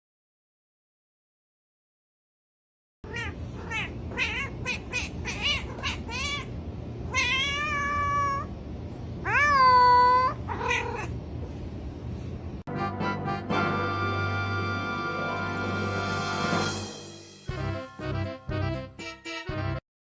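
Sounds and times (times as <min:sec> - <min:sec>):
cat meowing: 0:03.1 - 0:08.5, 0:09.2 - 0:11.2.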